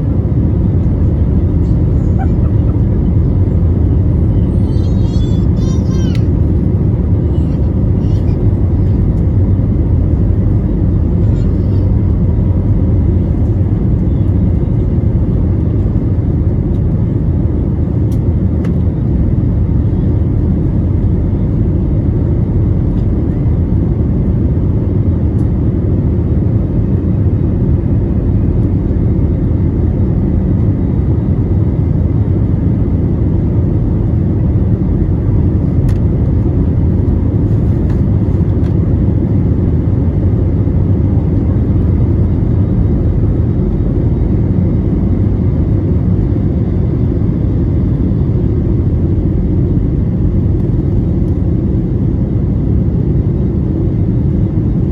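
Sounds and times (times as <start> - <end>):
jet engines roaring in cabin: 0.0 - 54.9.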